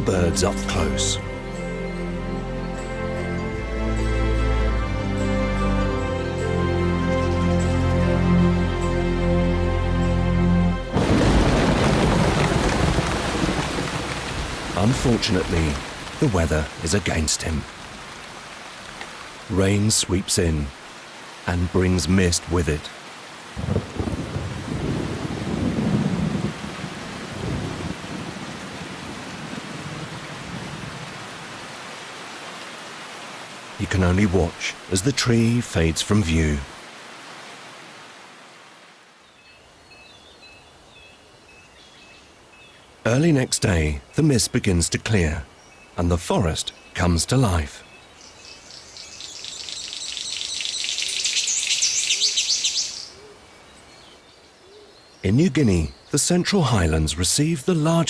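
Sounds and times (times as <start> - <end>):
heavy rain: 0.0 - 39.8
thunder rumbling: 10.9 - 16.8, 23.6 - 31.1
chorus of birds calling: 45.2 - 56.3.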